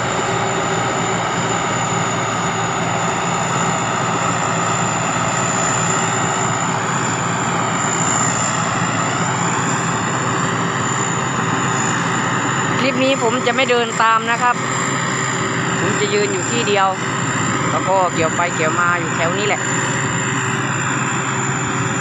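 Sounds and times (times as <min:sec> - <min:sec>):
diesel engine running: 0:00.0 - 0:22.0
high turbo whine: 0:00.0 - 0:22.0.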